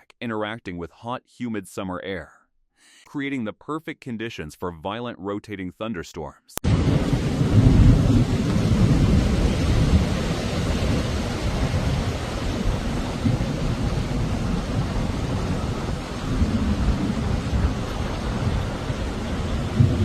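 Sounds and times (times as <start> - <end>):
rushing storm noise: 6.6 - 20.0.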